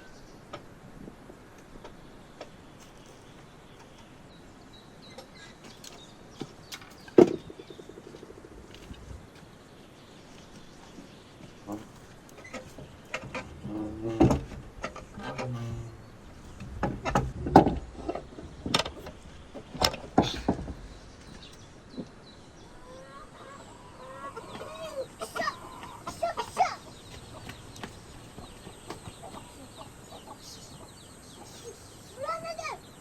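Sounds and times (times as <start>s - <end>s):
chickens clucking: 5.0s - 33.0s
sharp knocks: 12.6s - 22.1s.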